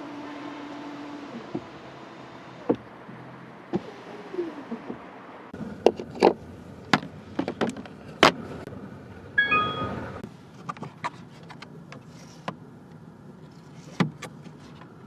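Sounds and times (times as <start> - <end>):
multi-pitch chime: 9.4 - 10.2.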